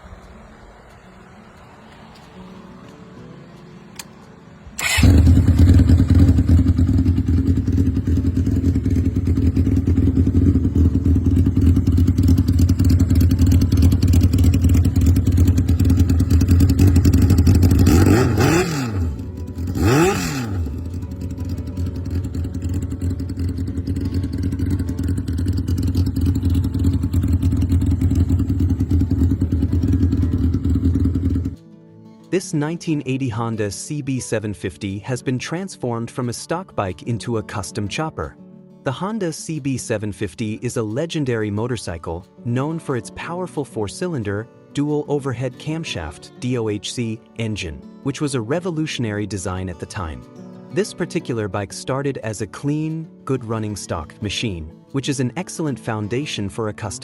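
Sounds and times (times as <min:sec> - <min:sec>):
motorcycle throttle blips: 0:03.9 - 0:31.6
motorcycle engine idling: 0:04.8 - 0:31.6.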